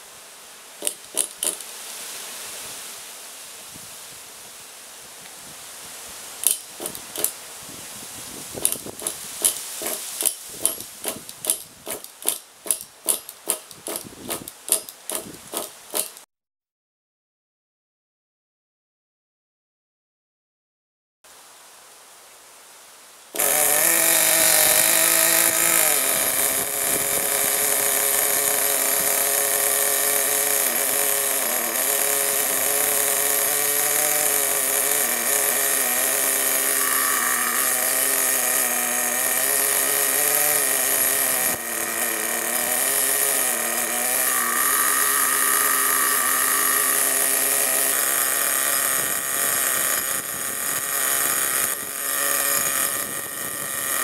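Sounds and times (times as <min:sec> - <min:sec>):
nitro engine idling: 0:06.4 - 0:07.3, 0:08.6 - 0:16.2, 0:23.4 - 0:54.0.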